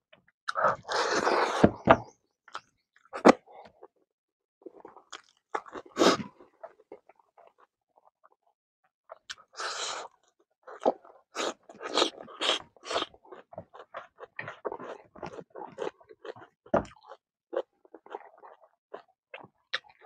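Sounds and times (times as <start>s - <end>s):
crunchy wet chewing: 4.7s - 7.7s, 9.1s - 20.0s.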